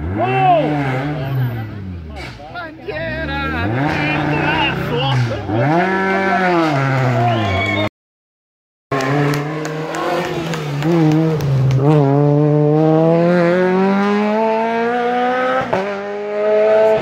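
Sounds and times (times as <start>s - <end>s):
rally car engine accelerating: 0.0s - 7.9s, 8.9s - 17.0s.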